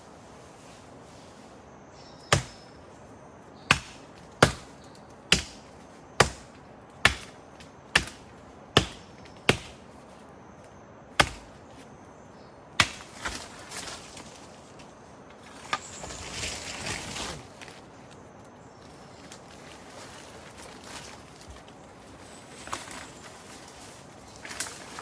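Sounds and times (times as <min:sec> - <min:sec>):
axe chopping wood: 0:02.3 - 0:02.7, 0:03.7 - 0:09.9, 0:11.2 - 0:11.6, 0:12.8 - 0:13.5.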